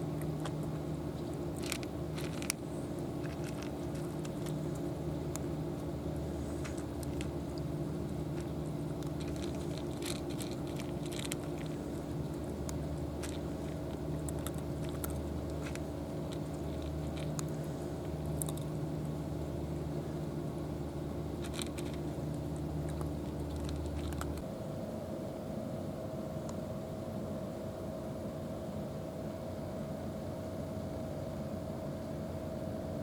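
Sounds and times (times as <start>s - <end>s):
engine hum: 0.0s - 33.0s
small crunching clicks: 0.1s - 5.9s, 6.6s - 19.2s, 21.4s - 24.4s.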